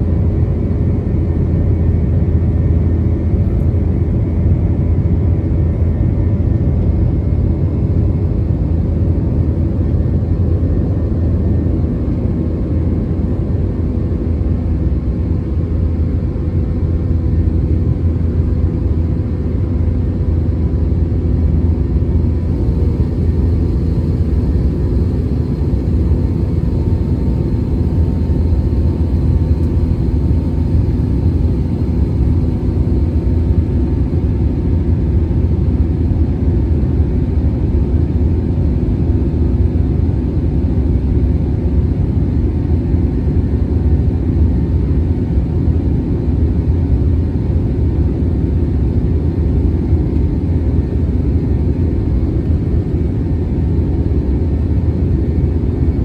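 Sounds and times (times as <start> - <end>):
jet engine rumble: 0.0 - 56.0
faint steady hums: 15.9 - 37.9.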